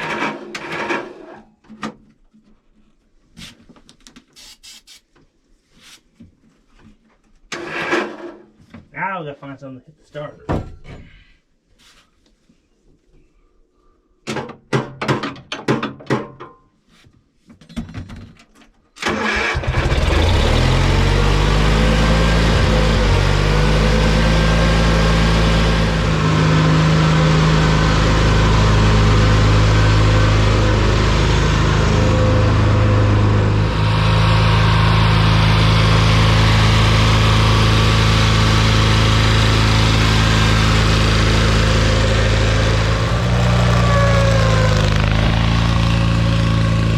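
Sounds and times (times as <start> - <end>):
lawn mower engine cranking: 0.0 - 1.4, 7.5 - 8.4, 19.0 - 46.9
lawn mower engine running: 19.0 - 46.9.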